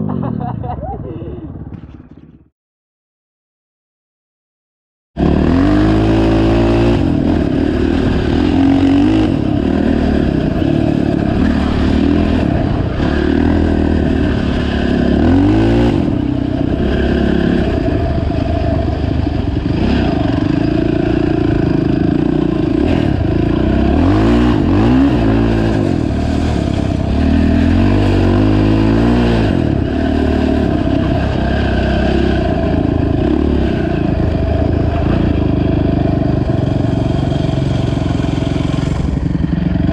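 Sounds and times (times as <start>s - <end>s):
atv engine revving: 5.2s - 39.9s.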